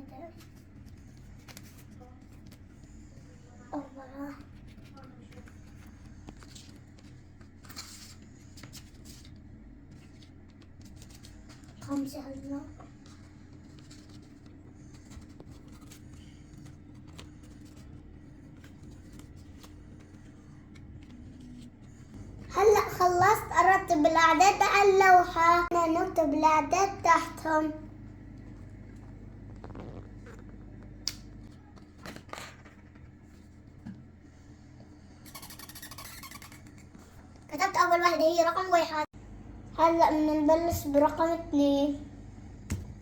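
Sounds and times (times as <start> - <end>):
low hum: 0.5 - 32.0, 39.2 - 43.0
pen scratching on a board: 35.2 - 36.8.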